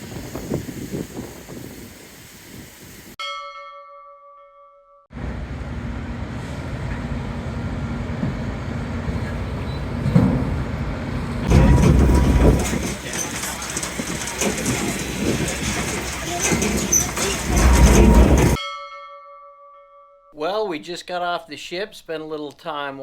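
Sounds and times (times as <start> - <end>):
bell-like chime: 18.6 - 20.3.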